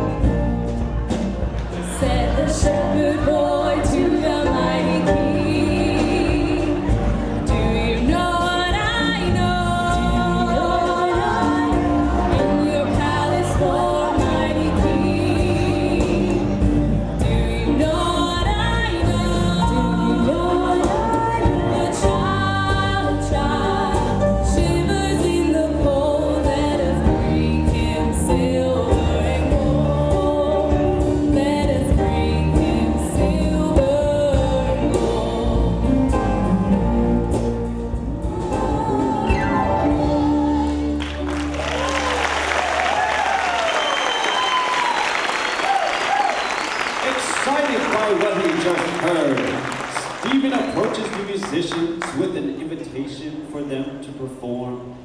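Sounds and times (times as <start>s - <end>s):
steady bass line: 0.0s - 43.7s
gospel song with voices: 0.0s - 54.2s.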